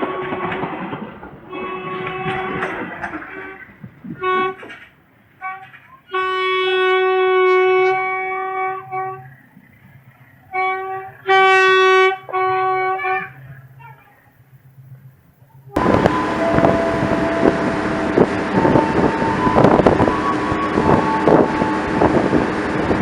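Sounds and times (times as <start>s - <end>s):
train horn blasts: 0.0s - 0.8s, 1.5s - 4.8s, 5.4s - 9.3s, 10.5s - 13.4s, 15.7s - 22.4s
train passing by: 0.0s - 23.0s.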